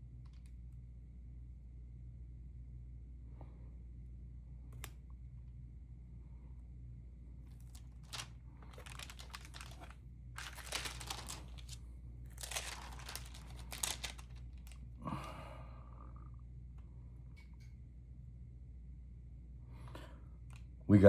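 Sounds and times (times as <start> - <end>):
low steady hum: 0.0 - 21.0
album pages rustling: 7.6 - 14.8.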